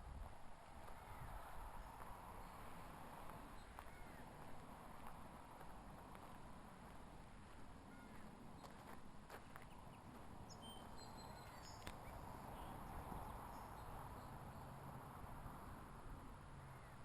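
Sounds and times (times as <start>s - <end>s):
faint outdoor ambience: 0.0s - 17.0s
high bird chirps: 10.5s - 12.8s.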